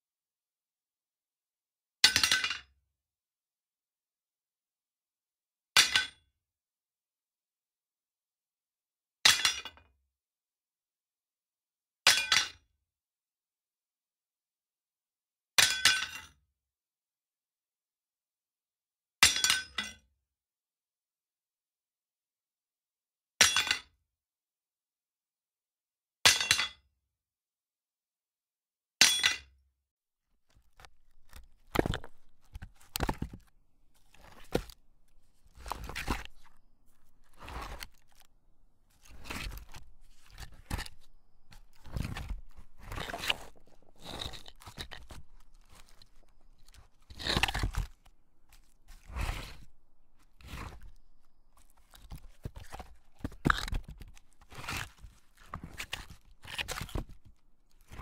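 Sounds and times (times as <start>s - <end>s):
crunching and scraping strikes: 30.4s - 58.0s.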